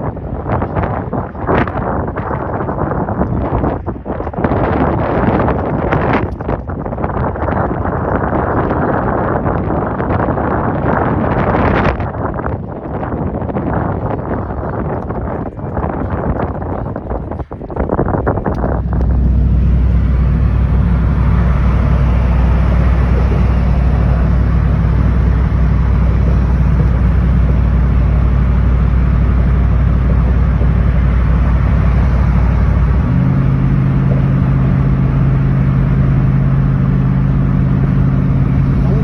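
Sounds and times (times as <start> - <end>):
engine droning: 13.0 - 39.0.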